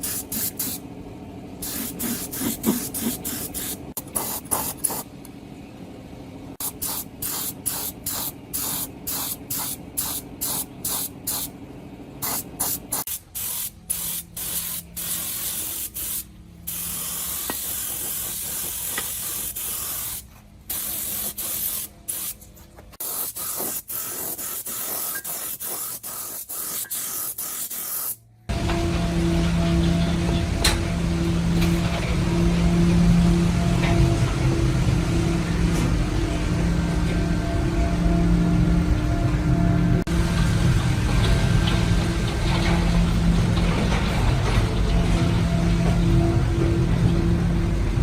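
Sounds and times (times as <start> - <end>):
spray hissing: 0.0 - 0.8, 1.6 - 5.1, 6.6 - 11.5, 12.2 - 22.4, 23.0 - 28.2.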